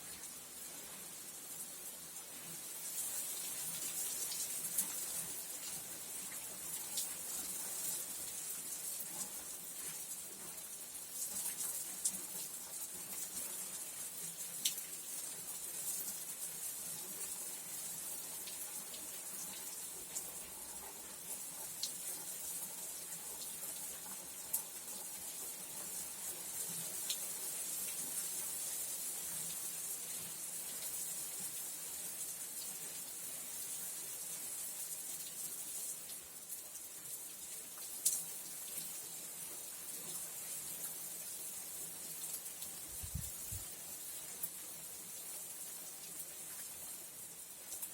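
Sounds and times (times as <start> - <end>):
rain falling: 17.2 - 47.9
raindrop ticks: 38.0 - 38.2.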